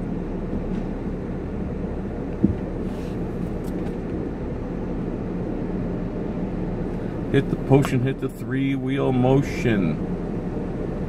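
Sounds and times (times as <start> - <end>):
car engine rumble inside cabin: 0.0 - 11.0
short knock: 2.4 - 2.7.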